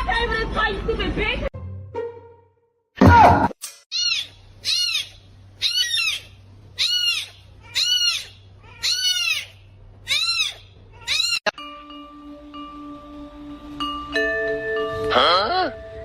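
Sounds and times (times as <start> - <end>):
animal high-pitched call: 3.9 - 11.5, 15.1 - 15.8.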